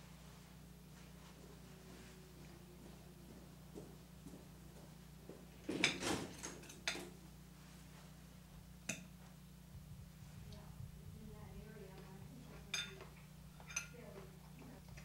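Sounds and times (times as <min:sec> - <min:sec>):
faint steady hum: 0:00.0 - 0:15.0
cutlery clinking on dishes: 0:12.7 - 0:14.0.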